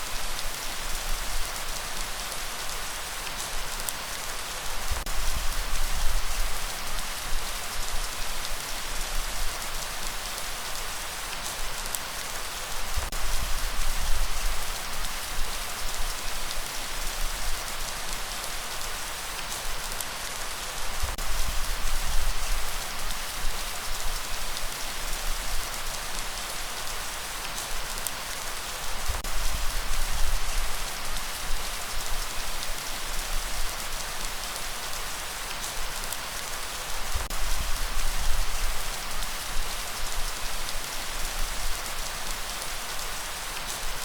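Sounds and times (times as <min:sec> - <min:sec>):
light rain falling: 0:00.0 - 0:44.0
low rumble of breeze: 0:04.7 - 0:10.3, 0:20.8 - 0:27.4, 0:28.8 - 0:35.5, 0:37.0 - 0:42.2.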